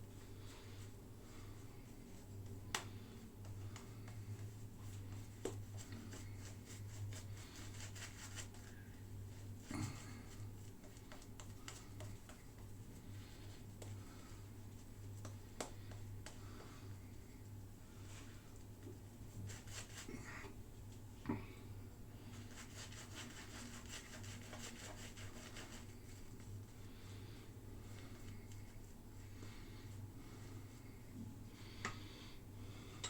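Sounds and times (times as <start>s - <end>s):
faint clicks and taps: 2.7s - 4.3s, 10.8s - 12.7s, 15.2s - 16.5s.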